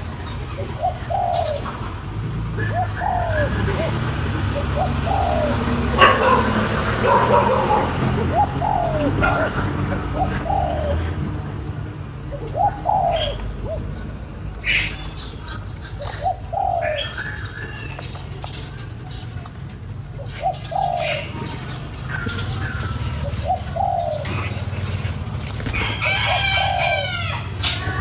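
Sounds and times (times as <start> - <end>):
dove cooing: 0.0 - 28.0.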